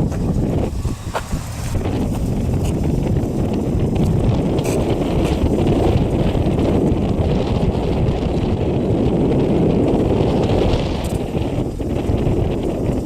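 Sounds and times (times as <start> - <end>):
car engine rumbling: 0.0 - 13.0
wind buffeting microphone: 0.0 - 13.0.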